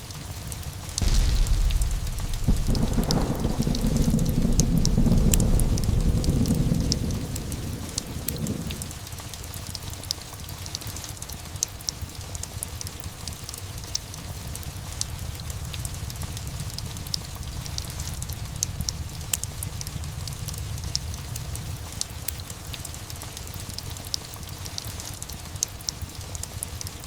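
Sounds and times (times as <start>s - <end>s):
steady rain: 0.0s - 27.0s
sharp ticks: 1.0s - 8.8s
low thunder rumble: 1.0s - 9.1s.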